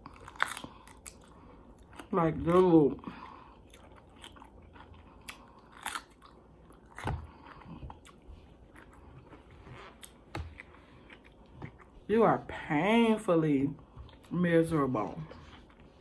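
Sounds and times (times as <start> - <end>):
food crunches: 0.0 - 2.2, 3.7 - 9.1
chewing and biting food: 0.0 - 12.0.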